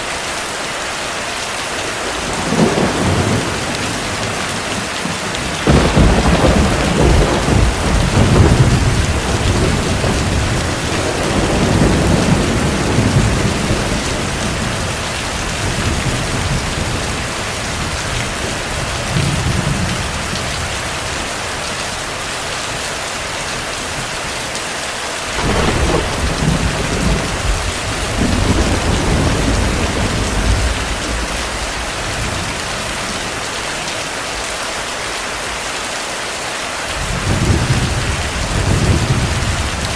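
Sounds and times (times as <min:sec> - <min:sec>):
heavy rain: 0:00.0 - 0:39.9
rolling thunder: 0:02.1 - 0:20.4, 0:25.4 - 0:33.4, 0:37.0 - 0:39.9.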